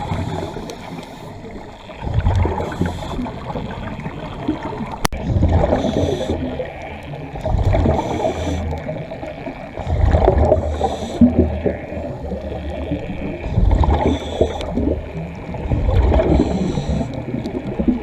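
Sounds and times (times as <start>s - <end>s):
regulator hissing inhale: 0.0s - 1.9s, 2.6s - 3.5s, 5.7s - 6.6s, 7.9s - 9.1s, 10.6s - 11.4s, 14.0s - 15.0s, 16.2s - 17.4s
bubbling exhale: 0.0s - 3.9s, 5.2s - 6.7s, 7.4s - 18.0s.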